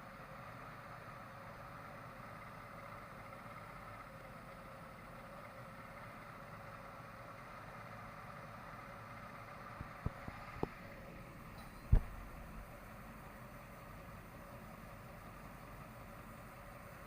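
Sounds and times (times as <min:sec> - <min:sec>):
boat engines idling: 0:00.0 - 0:17.0.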